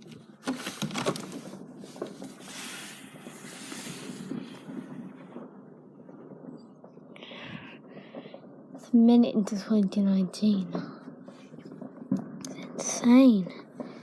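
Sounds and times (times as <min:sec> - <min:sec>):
hissing crackle: 0:00.0 - 0:14.0
low continuous rumble: 0:00.0 - 0:14.0
distant firework bangs: 0:01.4 - 0:08.9, 0:10.6 - 0:14.0.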